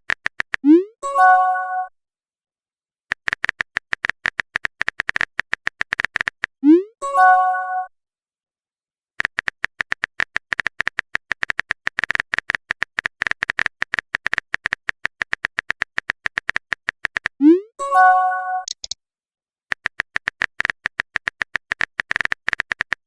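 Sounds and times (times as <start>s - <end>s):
keyboard typing clicks: 3.1s - 6.5s, 9.2s - 17.4s, 18.6s - 19.0s, 19.7s - 23.0s
message chime: 7.0s - 7.9s.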